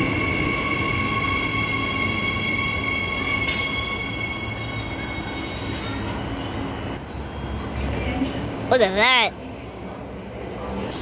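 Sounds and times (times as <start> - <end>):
high train whine: 0.0 - 8.7
low train rumble: 0.0 - 11.0.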